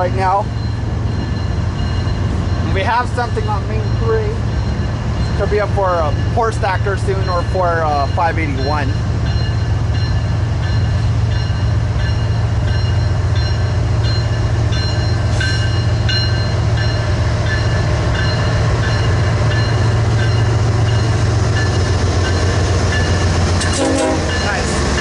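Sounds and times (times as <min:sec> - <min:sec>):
freight train rumbling: 0:00.0 - 0:25.0.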